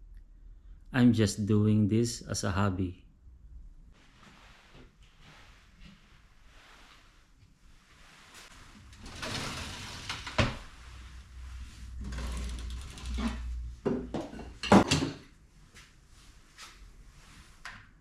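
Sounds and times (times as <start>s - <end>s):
tools rustling and scraping: 8.2s - 15.3s.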